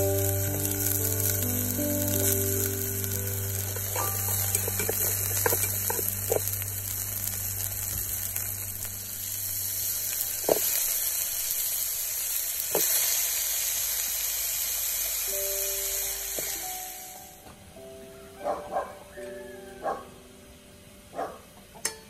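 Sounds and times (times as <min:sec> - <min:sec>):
food sizzling in hot oil: 0:00.0 - 0:17.4.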